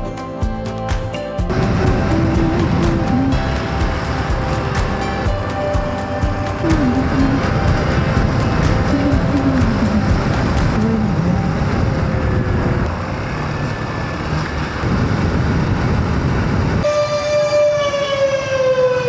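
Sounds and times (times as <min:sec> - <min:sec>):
motorcycle engine rumble: 0:01.4 - 0:16.8
loud horn-like tone: 0:16.8 - 0:19.0.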